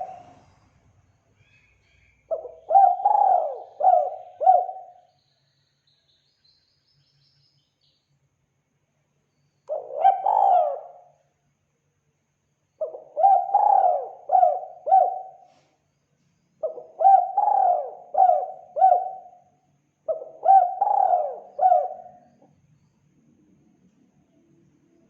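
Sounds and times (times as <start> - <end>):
dove cooing: 0.0 - 0.5, 2.3 - 5.0, 9.7 - 11.1, 12.8 - 15.5, 16.6 - 19.4, 20.1 - 22.4.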